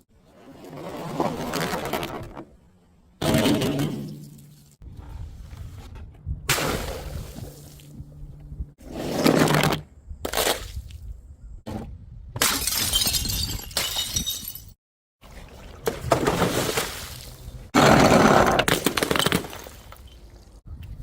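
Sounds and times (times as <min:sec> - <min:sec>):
glass bottles smashing: 0:12.4 - 0:14.8.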